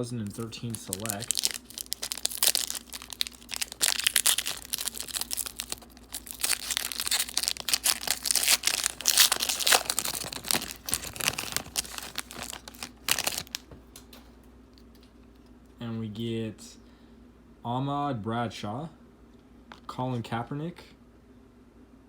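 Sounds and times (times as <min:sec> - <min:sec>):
wrapper tearing and crinkling: 0:00.0 - 0:13.6.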